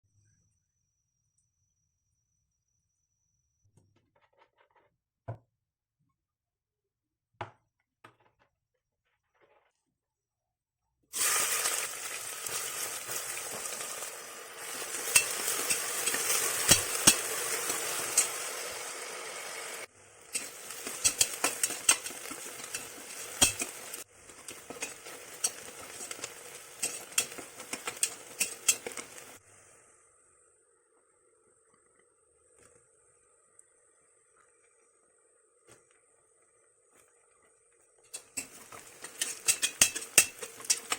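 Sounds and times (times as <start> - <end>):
food sizzling in a hot pan: 11.1 - 29.4, 38.1 - 40.9
utensil scraping a pan: 14.6 - 18.9, 20.3 - 29.4, 38.1 - 40.9.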